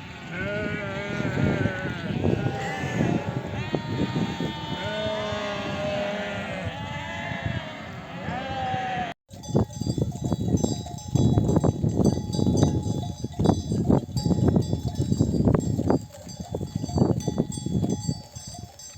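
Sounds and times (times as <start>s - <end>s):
sheep bells ringing: 9.3s - 18.9s.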